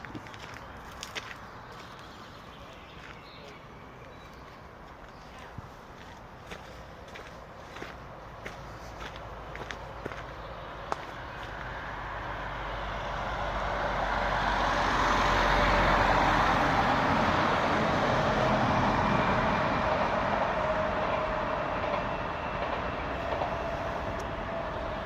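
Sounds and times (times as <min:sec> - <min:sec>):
vehicle passing by: 0:06.5 - 0:21.8.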